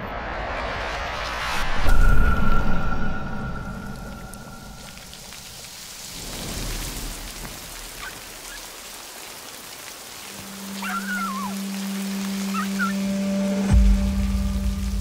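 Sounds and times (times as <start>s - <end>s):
heavy rain splashing: 3.8s - 15.0s
low background music: 11.2s - 15.0s.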